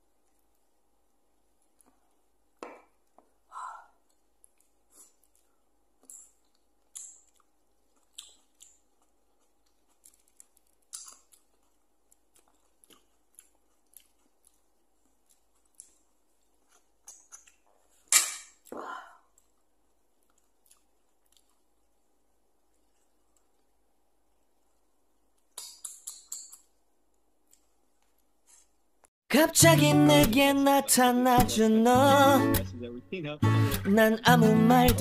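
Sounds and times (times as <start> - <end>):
person chewing food: 1.4 - 28.8.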